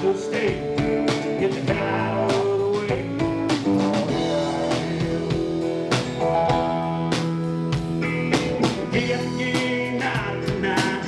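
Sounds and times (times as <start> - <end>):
country-rock band playing: 0.0 - 11.0
electric guitar: 0.0 - 11.0.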